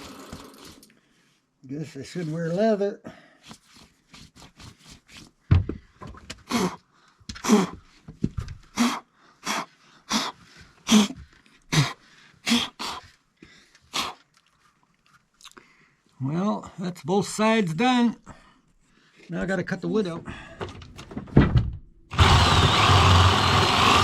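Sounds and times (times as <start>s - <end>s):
rasping cutting strokes into wood: 22.1s - 24.0s.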